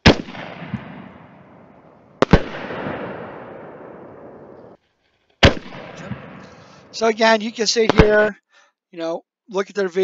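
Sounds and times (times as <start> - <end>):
firework bangs: 0.0 - 4.8, 5.4 - 8.3.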